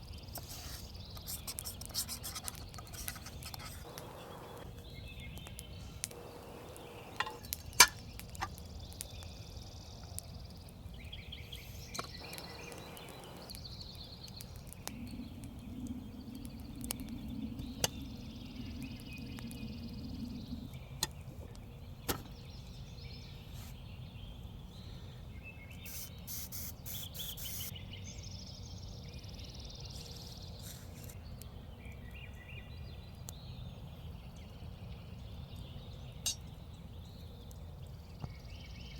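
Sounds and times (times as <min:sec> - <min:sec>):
birds calling: 0:00.4 - 0:08.6, 0:11.0 - 0:22.8, 0:24.8 - 0:27.7
sharp clicks and pops: 0:01.2 - 0:04.7, 0:05.3 - 0:09.3, 0:11.8 - 0:18.0.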